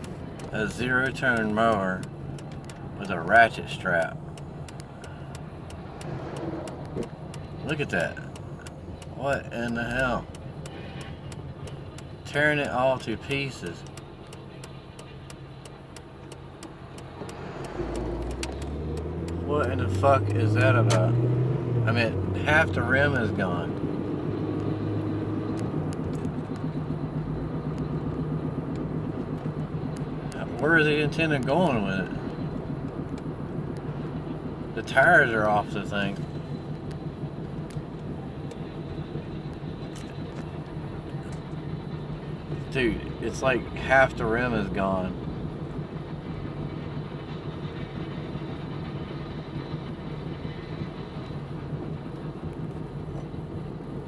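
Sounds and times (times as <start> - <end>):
faint clicks: 0.0 - 13.1, 13.7 - 21.2, 35.4 - 43.2
car engine and road hum: 0.0 - 54.0.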